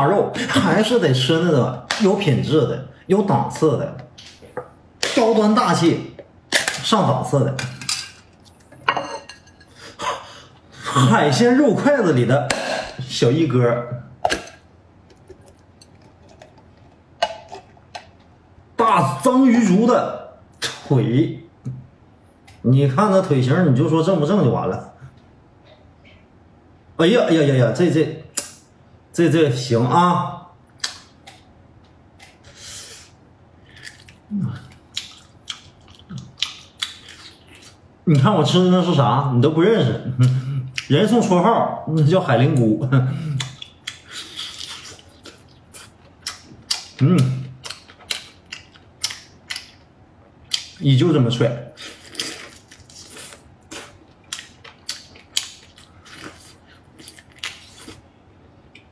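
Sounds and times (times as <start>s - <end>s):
man chewing: 14.2s - 18.3s, 32.1s - 37.8s, 43.2s - 50.8s, 51.8s - 58.9s
person chewing wet bites: 33.7s - 37.8s, 43.3s - 49.8s.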